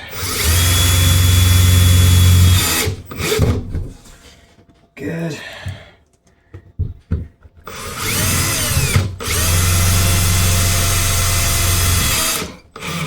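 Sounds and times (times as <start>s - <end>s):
power drill running: 0.0s - 3.7s, 7.7s - 13.0s.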